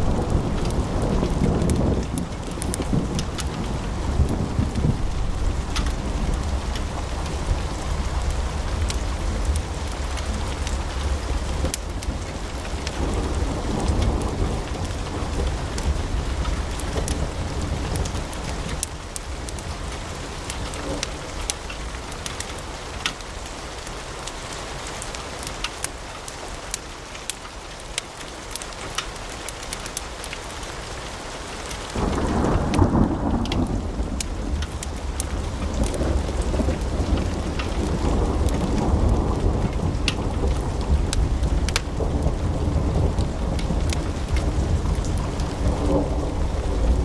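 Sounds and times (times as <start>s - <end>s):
deep low rumble: 0.0s - 12.3s
wood fire crackling: 0.0s - 47.0s.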